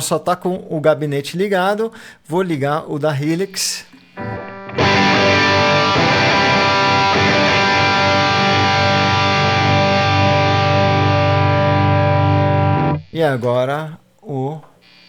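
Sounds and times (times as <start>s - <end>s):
faint amplifier hum: 0.0s - 15.0s
distorted electric guitar chord: 4.1s - 13.1s.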